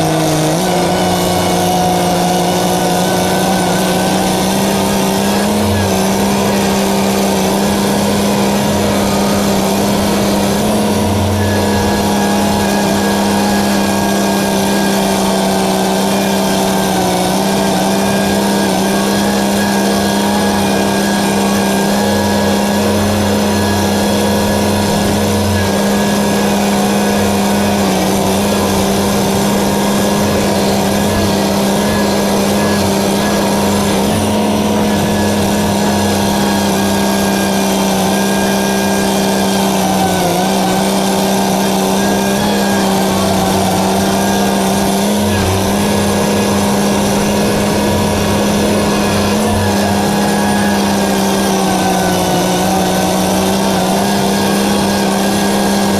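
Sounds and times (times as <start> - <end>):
engine droning steadily: 0.0 - 55.9.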